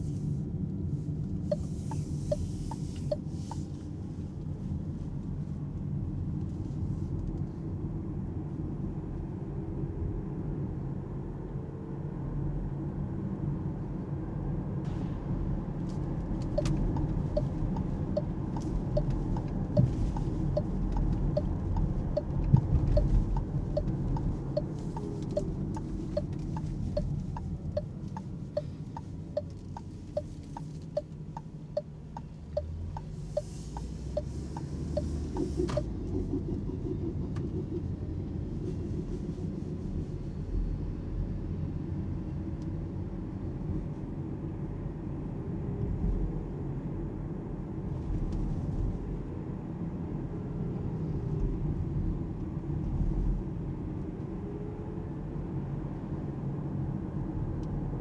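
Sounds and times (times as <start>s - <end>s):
road and tyre rumble: 0.0s - 58.0s
turn signal ticking: 1.2s - 3.8s, 15.9s - 37.8s.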